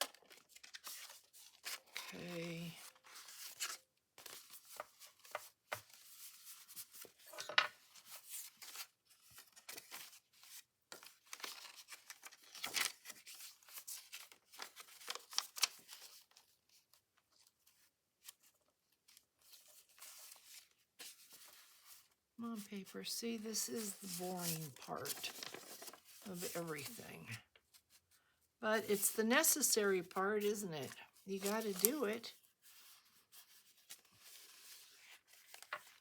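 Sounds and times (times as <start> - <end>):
paper rustling and scraping: 0.0 - 16.9, 17.6 - 22.2, 23.5 - 28.0, 29.0 - 36.0.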